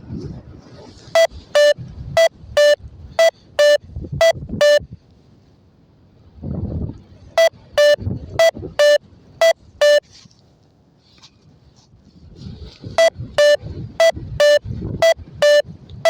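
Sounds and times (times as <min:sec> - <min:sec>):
short electronic beeps: 0:01.2 - 0:04.8, 0:07.4 - 0:10.0, 0:13.0 - 0:15.6.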